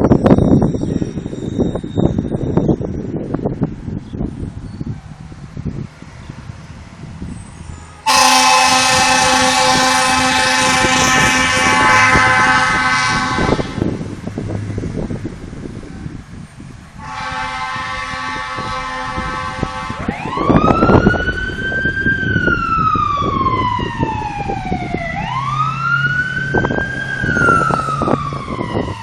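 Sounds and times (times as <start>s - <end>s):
truck rumble: 0.0s - 29.0s
fire engine air horn blasts: 8.0s - 14.0s, 17.0s - 21.0s.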